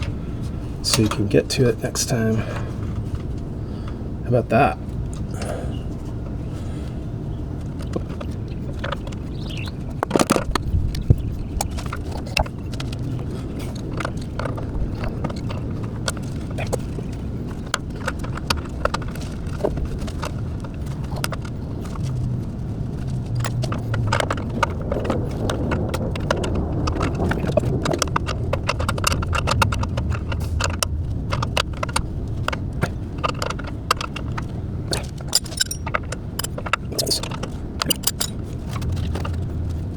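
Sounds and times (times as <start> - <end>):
steady low hum: 0.0 - 39.9
hand tools and metal parts clinking: 27.2 - 39.9.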